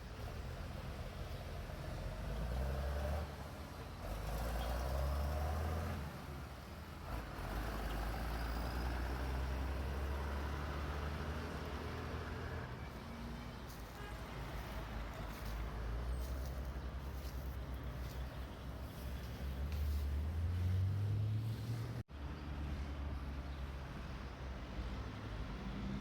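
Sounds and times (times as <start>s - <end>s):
vehicle engine humming: 6.8s - 22.1s.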